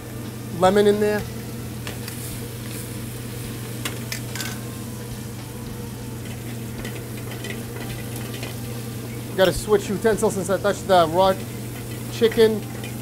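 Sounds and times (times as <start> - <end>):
chicken sizzling in a pan: 0.0 - 13.0
steady low hum: 0.0 - 13.0
metal tongs clicking on a pan: 6.2 - 8.6.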